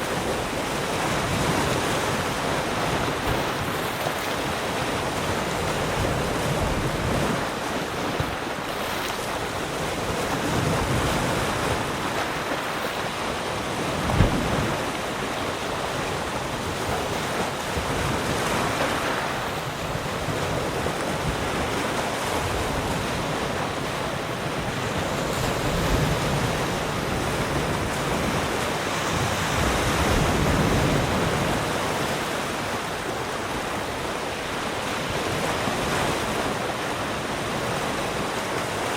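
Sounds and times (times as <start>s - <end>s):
ocean waves on shore: 0.0s - 38.9s
low thump: 14.1s - 14.5s.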